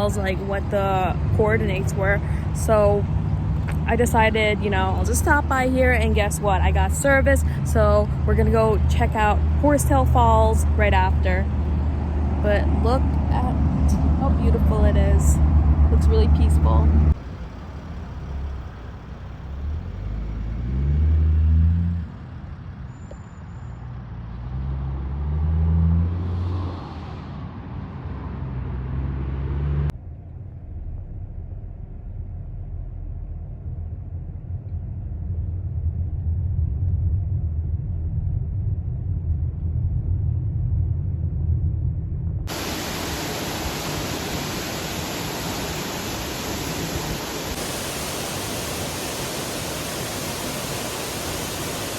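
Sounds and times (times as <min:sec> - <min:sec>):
steady low rumble: 0:00.0 - 0:20.6, 0:29.9 - 0:51.9
vehicles passing on highway: 0:00.0 - 0:31.4, 0:32.7 - 0:51.9
rushing falling water: 0:42.5 - 0:51.9.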